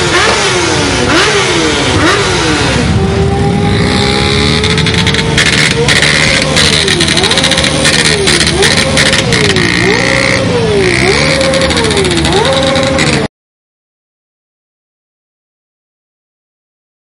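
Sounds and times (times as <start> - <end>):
motorcycle engine revving: 0.0 - 13.3.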